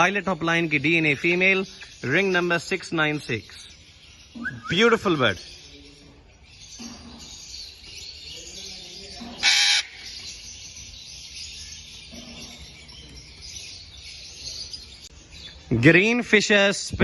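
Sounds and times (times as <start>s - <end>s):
budgerigars chattering and chirping: 0.0s - 16.6s
loud harsh squawk: 9.2s - 10.1s.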